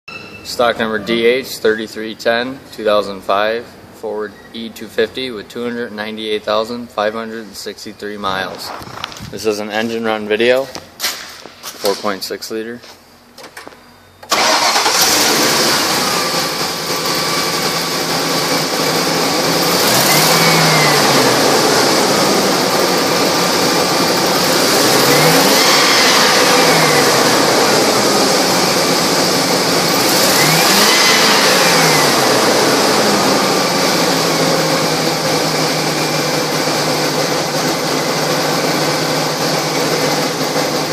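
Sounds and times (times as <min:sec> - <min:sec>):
engine idling and revving: 0:14.3 - 0:40.9.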